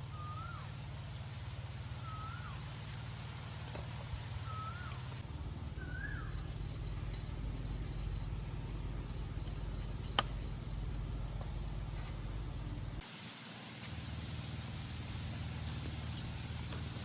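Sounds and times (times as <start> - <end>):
bird whistled call: 0.0 - 0.7, 2.0 - 2.6, 4.4 - 5.1, 5.8 - 6.6
rain hiss: 0.0 - 9.3, 10.5 - 17.0
low rumble: 5.2 - 13.0.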